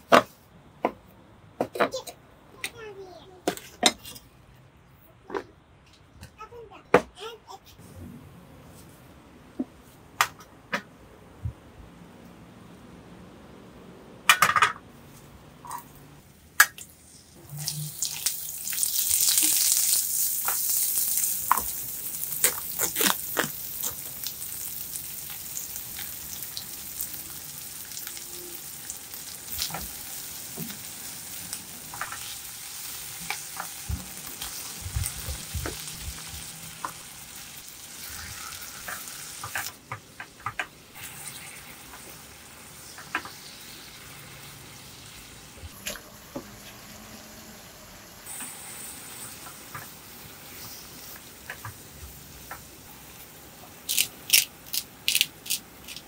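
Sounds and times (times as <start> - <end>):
food sizzling in hot oil: 16.8 - 39.8, 40.9 - 53.3.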